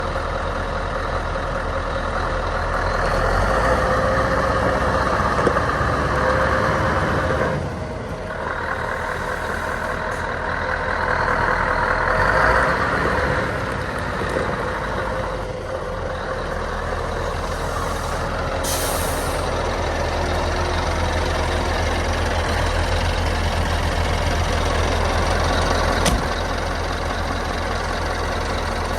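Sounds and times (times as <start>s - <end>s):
diesel truck engine running: 0.0s - 28.9s
air hiss: 17.4s - 19.5s.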